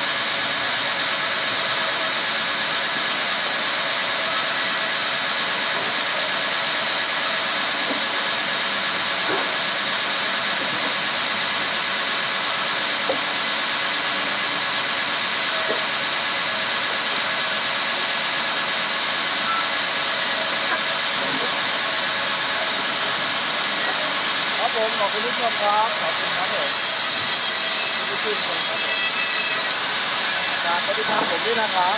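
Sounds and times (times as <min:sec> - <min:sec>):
woodworking machinery whooshing: 0:14.1 - 0:31.9.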